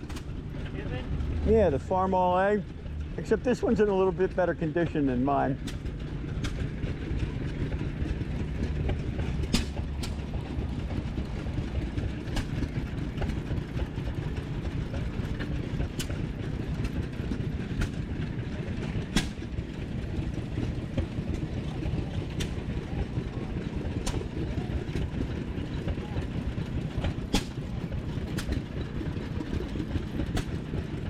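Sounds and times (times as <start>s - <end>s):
old engines rumbling: 0.0s - 31.0s
sharp engine pops: 9.4s - 10.2s, 19.1s - 19.5s, 27.3s - 27.6s.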